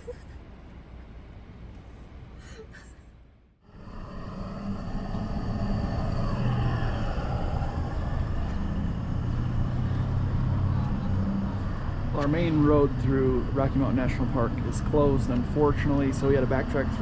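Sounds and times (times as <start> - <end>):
car engine and tyre noise: 3.6 - 17.0.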